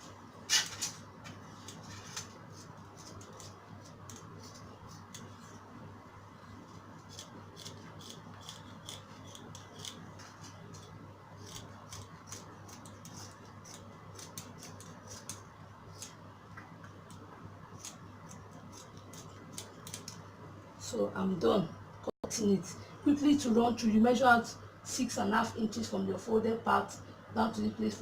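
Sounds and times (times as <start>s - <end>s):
scissors snipping fabric: 7.0s - 16.2s, 17.8s - 20.2s.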